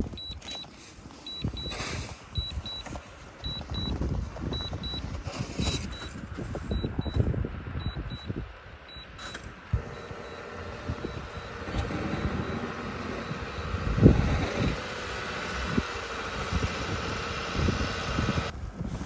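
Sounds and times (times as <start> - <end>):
steady low hum: 2.1 - 18.6
high electronic beeps: 2.4 - 5.1, 5.7 - 7.2, 8.9 - 14.8.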